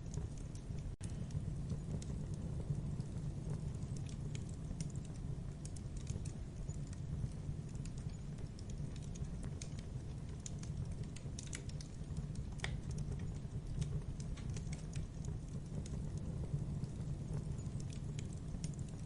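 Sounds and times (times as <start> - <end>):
low rumble of flames: 0.0 - 19.0
sharp snaps and pops: 0.0 - 19.0
wood fire crackling: 0.0 - 19.0.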